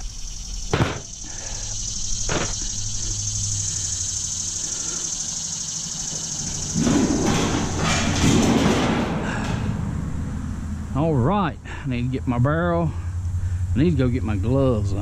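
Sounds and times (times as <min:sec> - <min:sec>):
steady high hiss: 0:00.0 - 0:06.8.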